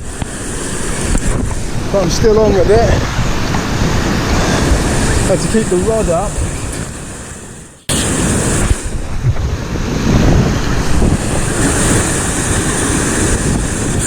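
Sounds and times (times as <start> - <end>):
waves breaking over rocks: 0.0 - 14.0
wind buffeting microphone: 0.0 - 14.0.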